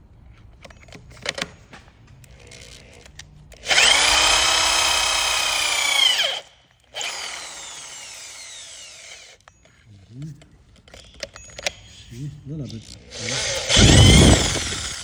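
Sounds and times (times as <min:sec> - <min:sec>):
electric drill whining: 0:02.4 - 0:09.5, 0:13.1 - 0:15.0.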